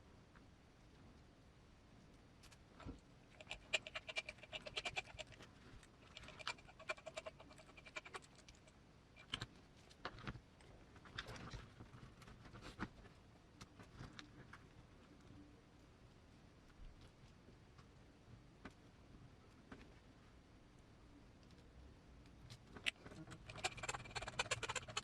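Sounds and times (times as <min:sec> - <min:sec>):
small parts clicking and tapping: 0:03.3 - 0:10.4, 0:22.2 - 0:25.0.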